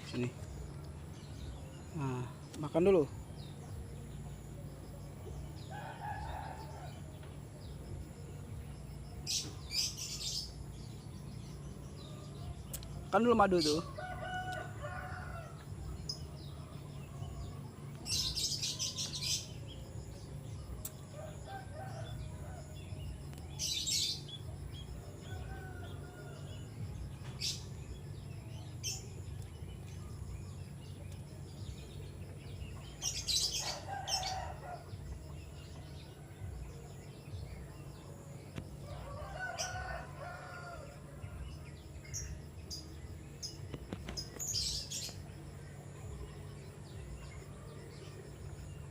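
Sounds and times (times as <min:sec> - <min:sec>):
steady low hum: 0:00.0 - 0:33.9
rooster crowing: 0:13.9 - 0:15.7, 0:21.2 - 0:22.7, 0:33.2 - 0:34.9, 0:38.8 - 0:41.2.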